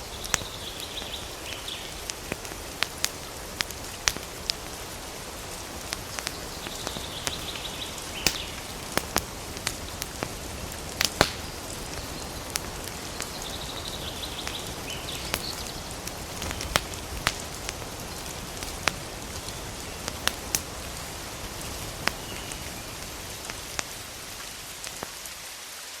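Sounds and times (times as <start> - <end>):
campfire crackling and popping: 0.0 - 25.5
steady fire hiss: 0.0 - 26.0
bird calling: 18.7 - 25.2.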